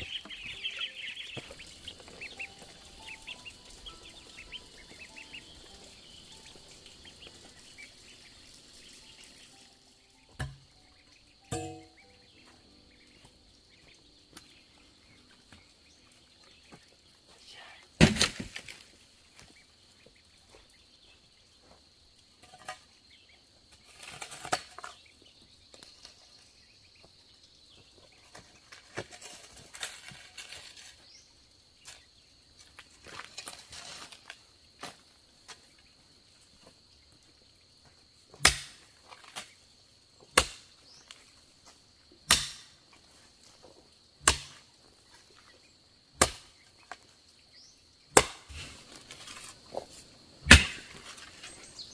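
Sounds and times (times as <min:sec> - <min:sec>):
faint high insect buzz: 0:00.0 - 0:51.9
blade chopping bamboo: 0:38.4 - 0:38.8, 0:42.3 - 0:42.7, 0:44.2 - 0:44.6, 0:46.2 - 0:46.5, 0:48.1 - 0:48.6, 0:50.4 - 0:50.9.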